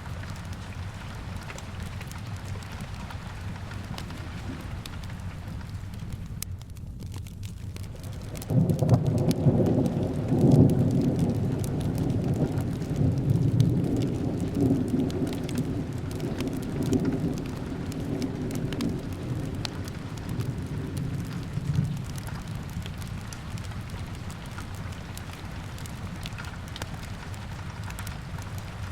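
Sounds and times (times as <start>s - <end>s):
fireplace crackling: 0.0s - 28.9s
steady rain: 0.0s - 28.9s
rolling thunder: 8.0s - 24.9s.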